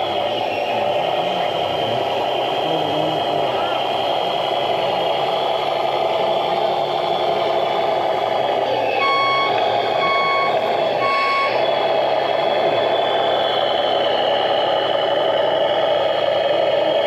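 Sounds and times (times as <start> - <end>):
model vehicles running noise: 0.0 - 17.0
reversing beeper: 8.8 - 11.7.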